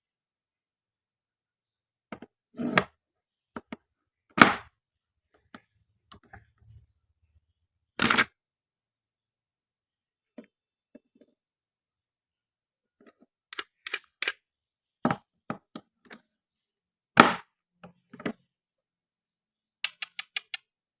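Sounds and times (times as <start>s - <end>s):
toy food pieces clicking: 19.8s - 20.7s.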